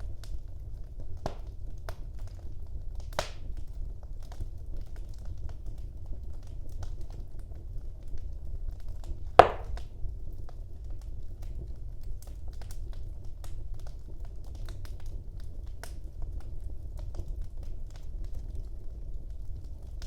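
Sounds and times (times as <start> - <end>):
low rumble of flames: 0.0 - 20.0
small fire crackles: 0.0 - 20.0
loud fire pop: 9.4 - 9.8.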